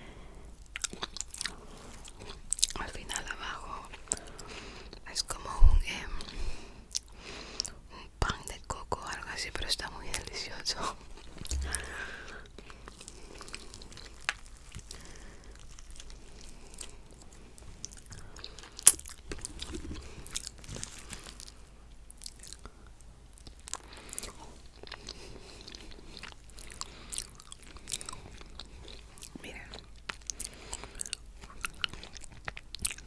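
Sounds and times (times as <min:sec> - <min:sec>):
mouth clicks: 0:11.5 - 0:12.3.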